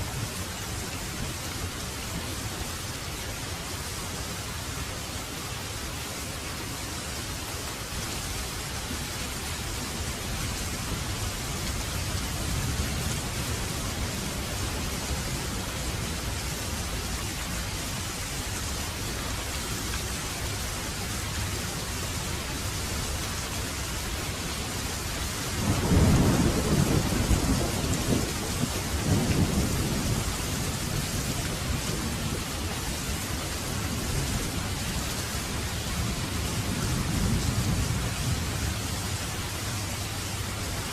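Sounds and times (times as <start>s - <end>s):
heavy rain pouring: 0.0s - 40.9s
thunder rumbling: 25.6s - 33.2s, 35.8s - 38.9s.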